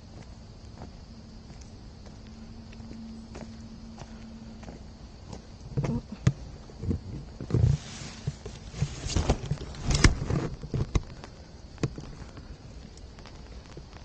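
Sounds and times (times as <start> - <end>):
footsteps on forest path: 0.0 - 9.7.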